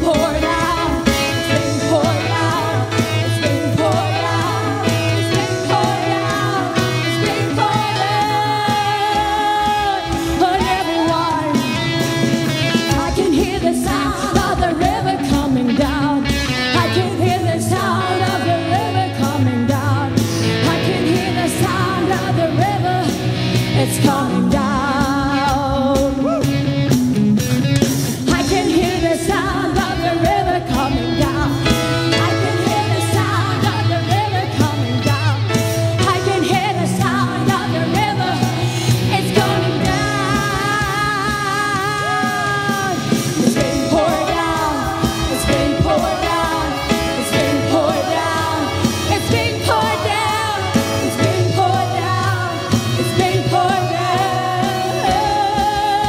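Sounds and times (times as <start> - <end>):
bass: 0.0 - 56.0
drums: 0.0 - 56.0
live band playing: 0.0 - 56.0
person singing: 28.3 - 56.0.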